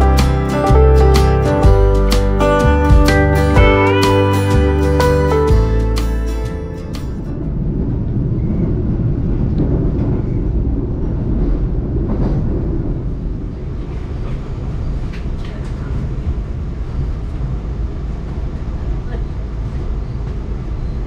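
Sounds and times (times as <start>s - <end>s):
train wheels rumbling on rails: 6.9s - 21.0s.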